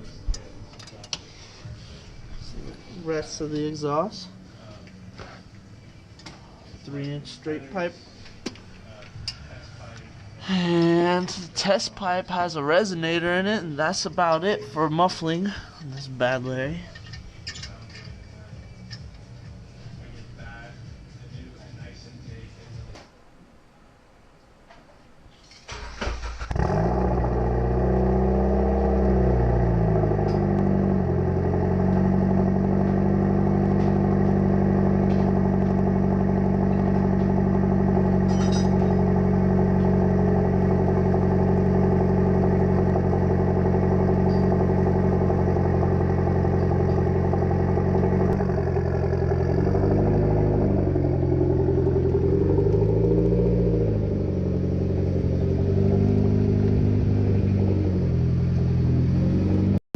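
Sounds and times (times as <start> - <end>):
car engine starting and idling: 0.0 - 20.7, 25.5 - 59.8
engine revving: 25.7 - 59.8.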